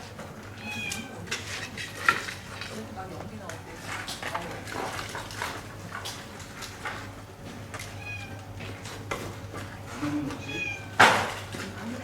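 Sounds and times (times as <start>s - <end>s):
cat meowing: 0.6s - 1.2s, 8.0s - 8.4s, 10.1s - 11.0s.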